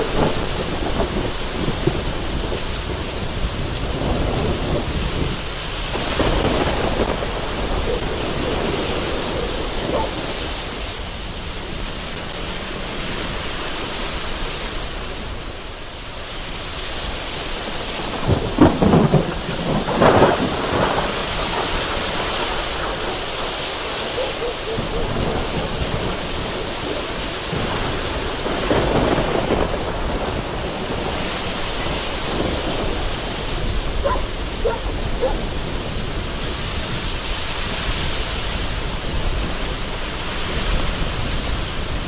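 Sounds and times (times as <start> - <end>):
thunder rumbling: 0.0 - 13.4, 17.0 - 37.3
gusty wind: 0.0 - 42.0
heavy rain on a window: 0.0 - 42.0.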